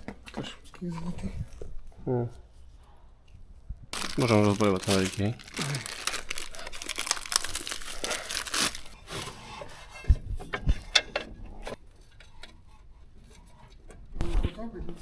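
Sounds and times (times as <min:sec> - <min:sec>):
crinkling rustling handling noise: 0:03.9 - 0:09.5.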